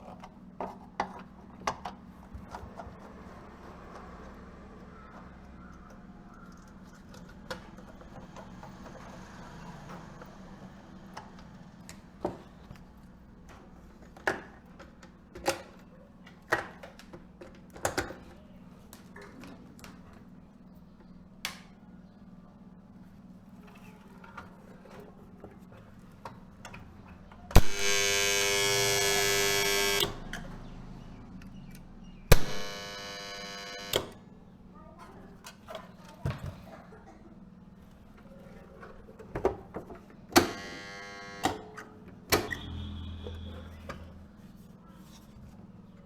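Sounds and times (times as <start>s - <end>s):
loud electrical buzz: 27.6s - 30.2s, 32.3s - 34.2s, 40.4s - 41.6s.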